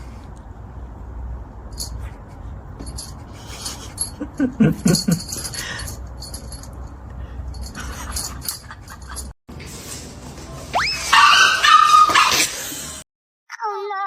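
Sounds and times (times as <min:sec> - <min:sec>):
light metallic jingling: 0:02.8 - 0:09.3.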